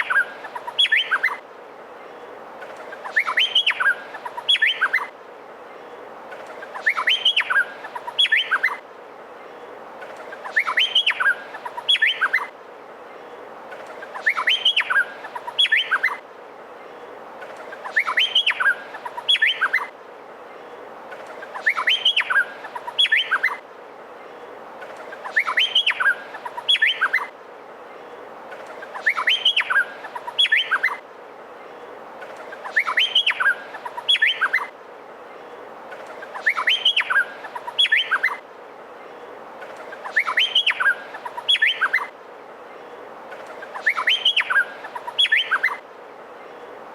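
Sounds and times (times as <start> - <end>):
bird singing whistled notes: 0.0 - 1.4, 3.0 - 5.1, 6.7 - 8.8, 10.4 - 12.5, 14.1 - 16.2, 17.8 - 19.9, 21.5 - 23.6, 25.2 - 27.3, 28.9 - 31.0, 32.6 - 34.7, 36.3 - 38.4, 40.0 - 42.1, 43.6 - 45.8
faint background hiss: 0.0 - 46.9.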